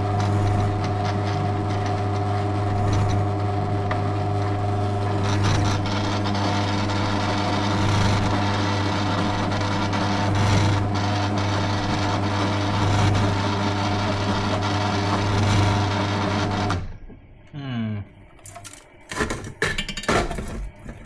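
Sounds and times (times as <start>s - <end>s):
power tool on sheet steel: 0.0s - 16.8s.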